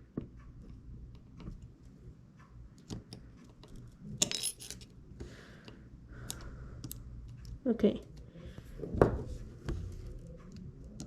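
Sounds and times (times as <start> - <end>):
small tools clicking and tapping: 2.8 - 8.2
metallic clinking: 4.0 - 4.9.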